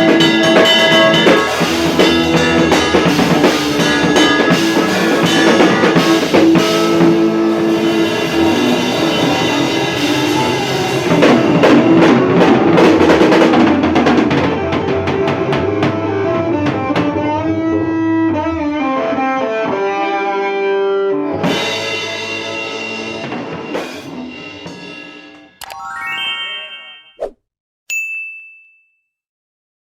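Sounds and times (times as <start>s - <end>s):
drum kit: 0.0s - 17.0s, 21.4s - 25.3s
electric guitar: 0.0s - 24.5s.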